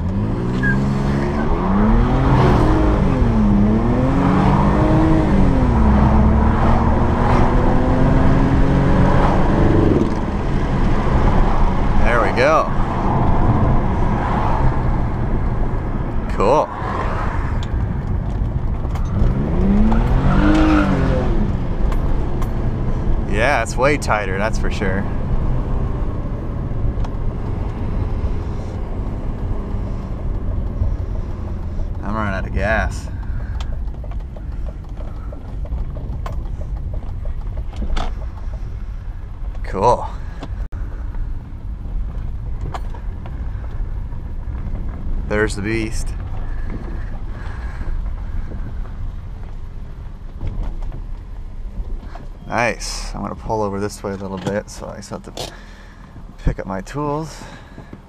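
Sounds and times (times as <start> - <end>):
car engine revving: 0.0 - 40.4.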